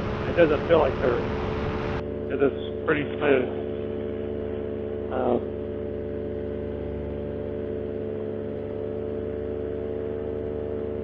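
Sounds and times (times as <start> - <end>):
paramotor engine and propeller drone: 0.0 - 11.0.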